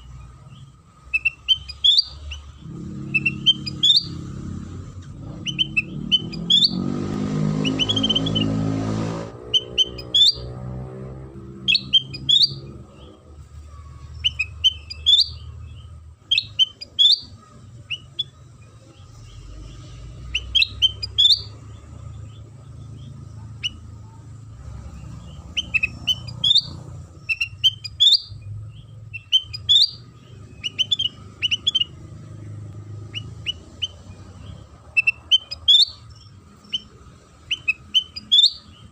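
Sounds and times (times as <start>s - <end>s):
bulbul chirping: 0.0s - 4.4s, 5.1s - 8.7s, 9.4s - 10.6s, 11.5s - 13.4s, 14.1s - 24.2s, 25.0s - 38.9s.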